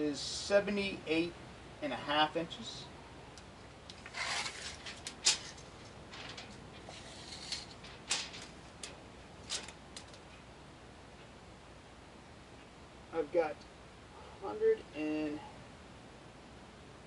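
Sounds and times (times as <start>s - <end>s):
tape measure blade scraping: 3.9s - 8.5s.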